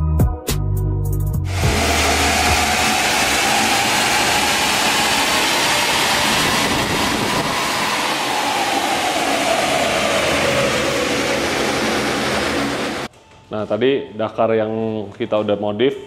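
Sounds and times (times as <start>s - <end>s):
dynamometer whine: 1.5s - 13.1s
loud steady rushing noise: 1.5s - 13.1s.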